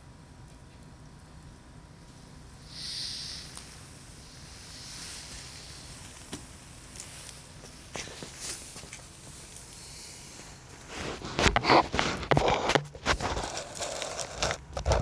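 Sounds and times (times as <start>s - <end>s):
campfire crackling: 0.8s - 15.0s
brief hiss: 2.6s - 11.3s.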